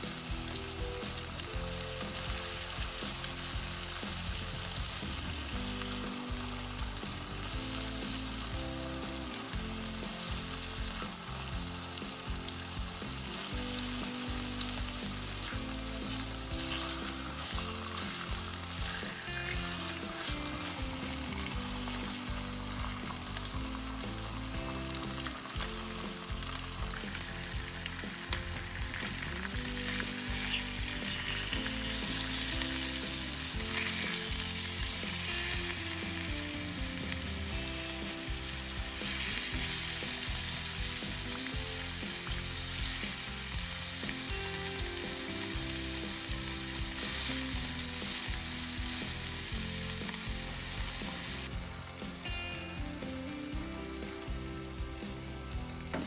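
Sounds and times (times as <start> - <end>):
chicken sizzling in oil: 0.0 - 56.0.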